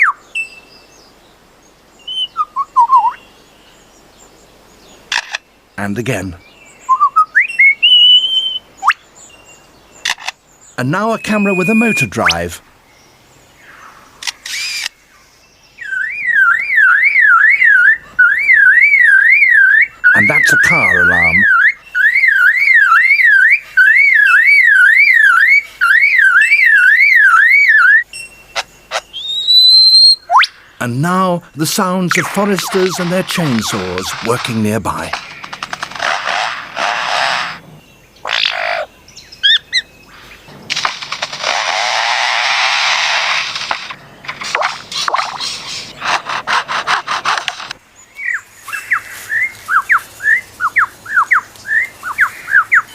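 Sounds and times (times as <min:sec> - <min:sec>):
short whistled bird notes: 0:02.1 - 0:03.2, 0:06.8 - 0:09.0
bird mimicking car alarm: 0:11.0 - 0:12.5, 0:15.8 - 0:30.6, 0:31.2 - 0:37.2
bird mimicking a chainsaw: 0:14.3 - 0:14.9, 0:32.2 - 0:37.6.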